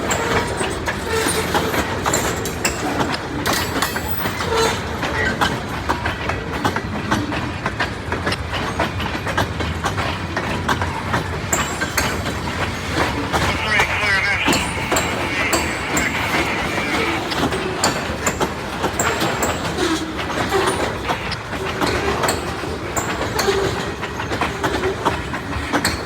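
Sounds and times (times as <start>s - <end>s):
train wheels clicking over rail joints: 0.0s - 13.2s.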